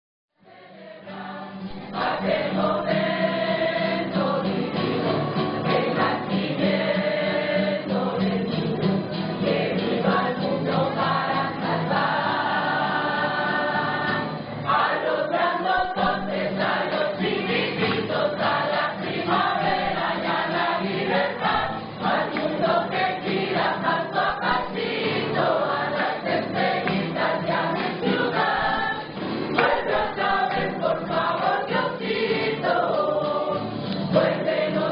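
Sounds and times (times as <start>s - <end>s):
choir singing: 0.4s - 34.9s.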